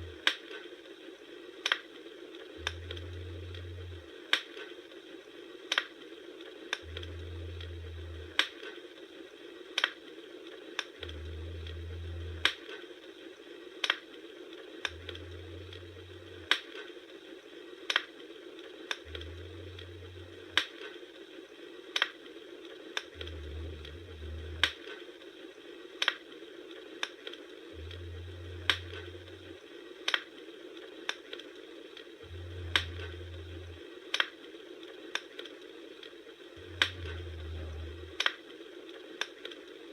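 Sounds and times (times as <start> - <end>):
low rumble: 0.0 - 0.3, 2.6 - 4.2, 6.8 - 8.5, 11.0 - 12.6, 14.9 - 16.5, 19.0 - 20.6, 23.1 - 24.8, 27.8 - 29.6, 32.3 - 33.8, 36.6 - 38.2
campfire crackles and pops: 0.0 - 39.9.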